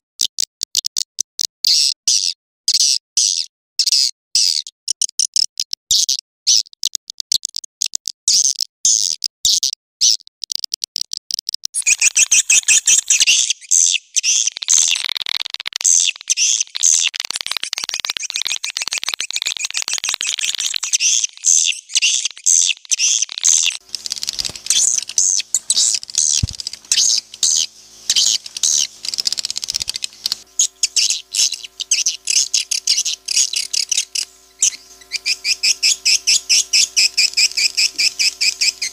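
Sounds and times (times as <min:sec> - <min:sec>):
swiftlet chirps and twittering: 0:11.8 - 0:38.9
steady low hum: 0:23.8 - 0:38.9.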